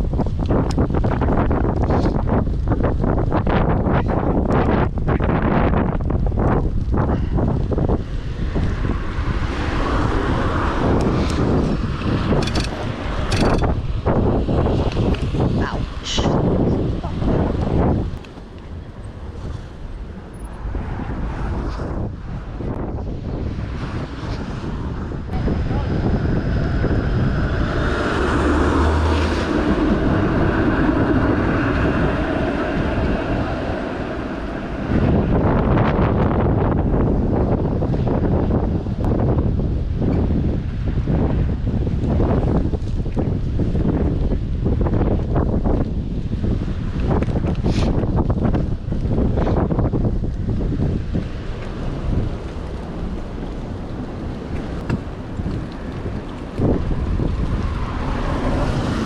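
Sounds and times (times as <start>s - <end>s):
low hum: 0.0s - 37.8s
city traffic rumble: 0.0s - 59.0s
wind buffeting microphone: 0.0s - 59.0s.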